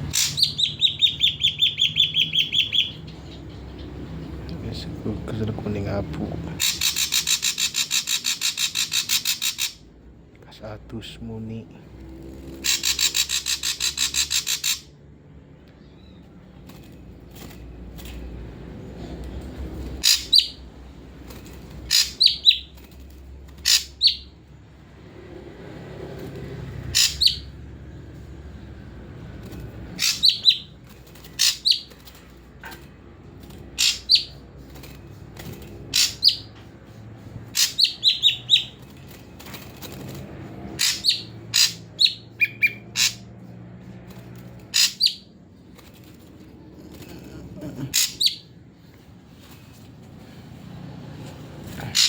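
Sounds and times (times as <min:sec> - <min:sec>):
songbird chirping: 0:00.1 - 0:05.0.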